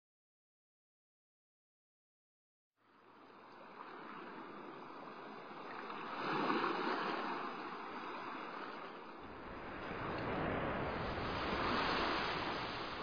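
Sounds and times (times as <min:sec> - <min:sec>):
sea waves washing: 0:03.1 - 0:13.0.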